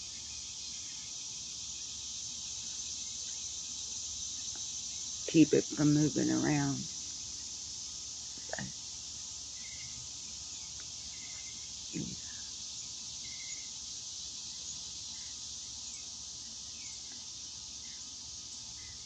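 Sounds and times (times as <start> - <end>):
insect chorus: 0.0 - 19.0.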